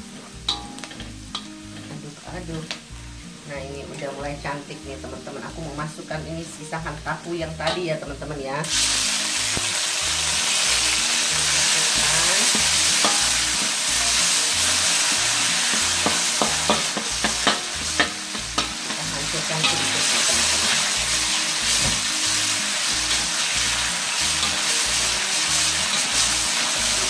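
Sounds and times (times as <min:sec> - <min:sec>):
tofu sizzling in hot oil: 0:00.1 - 0:27.0
spatula scraping a wok: 0:00.5 - 0:02.1, 0:08.6 - 0:27.0.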